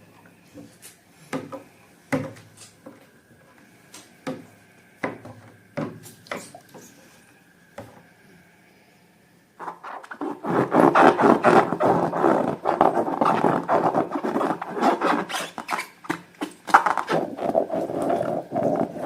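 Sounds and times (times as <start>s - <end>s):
faint steady tone: 6.5s - 9.6s.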